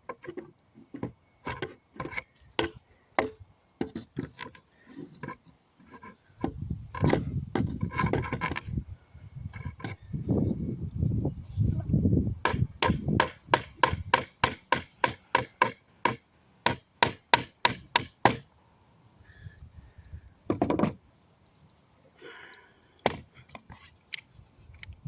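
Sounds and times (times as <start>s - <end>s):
hammer striking nails: 12.4s - 18.5s.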